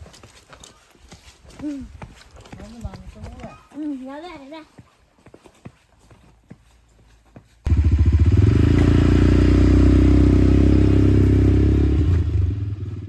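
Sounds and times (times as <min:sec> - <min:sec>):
motorcycle engine running: 0:07.7 - 0:13.0.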